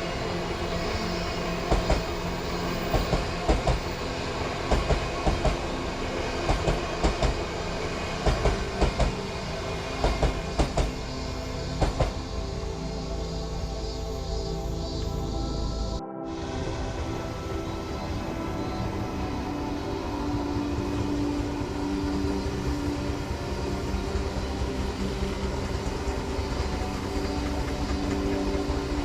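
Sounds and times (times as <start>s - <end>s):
train rumble: 0.0s - 29.0s
train wheels clacking on rails: 1.6s - 4.0s, 4.6s - 5.8s, 6.4s - 9.3s, 10.0s - 11.1s, 11.8s - 12.2s, 24.0s - 29.0s.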